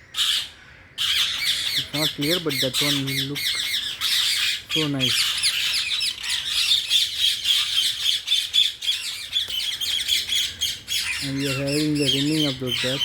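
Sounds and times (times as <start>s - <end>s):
parakeets screeching: 0.0s - 13.0s.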